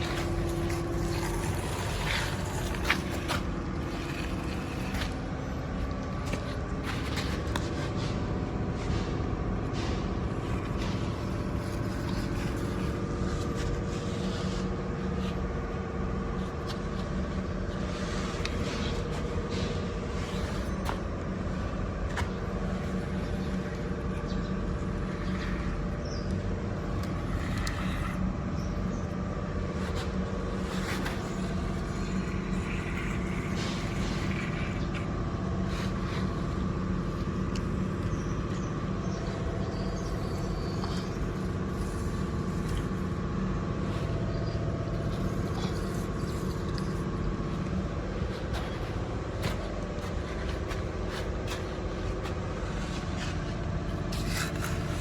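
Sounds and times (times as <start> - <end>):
toy electric motors whirring: 0.0 - 5.4, 26.8 - 28.3, 29.8 - 35.1
clicks and scrapes: 0.0 - 8.0, 26.8 - 28.2, 29.7 - 36.3, 48.2 - 55.0.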